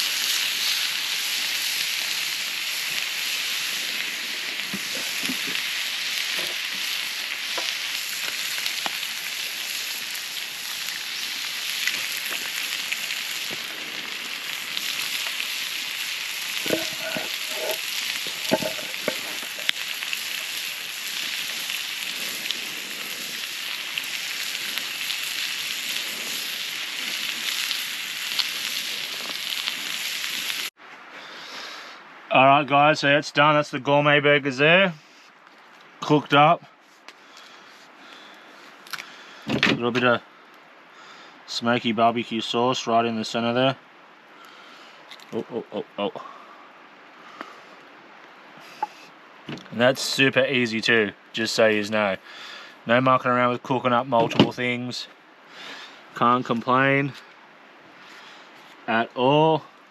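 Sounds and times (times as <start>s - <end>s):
patties sizzling on barbecue: 0.0s - 30.8s, 48.6s - 57.3s, 57.9s - 59.9s.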